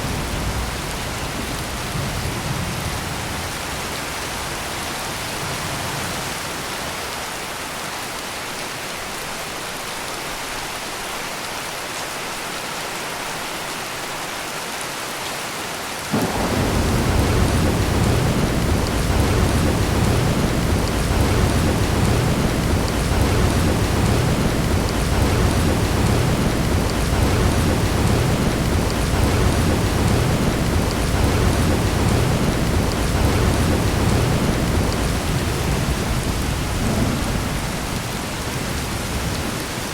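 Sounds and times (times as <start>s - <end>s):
heavy rain pouring: 0.0s - 39.9s
deep thunder rumble: 16.1s - 39.9s.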